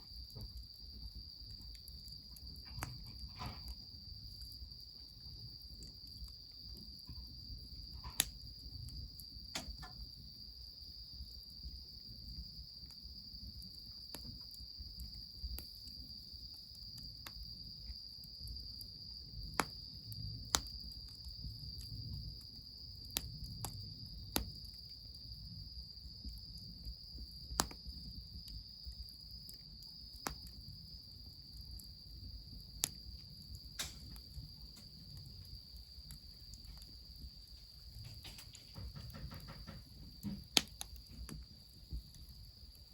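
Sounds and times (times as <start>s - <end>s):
crickets chirring: 0.0s - 42.9s
wood fire popping: 0.0s - 42.9s.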